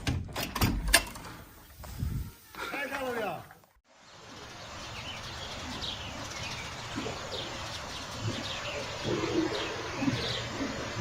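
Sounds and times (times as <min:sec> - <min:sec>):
birds chirping: 0:04.0 - 0:11.0
low cooing calls: 0:06.9 - 0:11.0.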